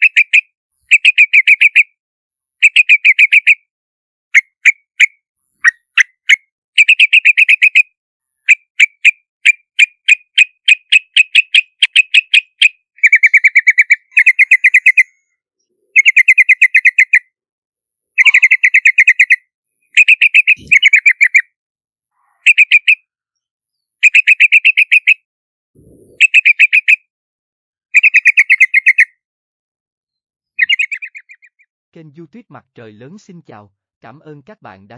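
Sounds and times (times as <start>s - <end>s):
bird calling: 11.3s - 17.2s, 18.2s - 21.5s, 25.8s - 27.0s, 30.6s - 31.7s.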